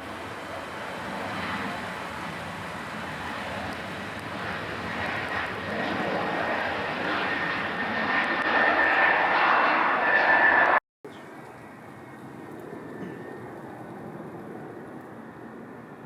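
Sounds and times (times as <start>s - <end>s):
jet airliner engines: 0.0s - 16.0s
thin high whine: 6.5s - 10.8s.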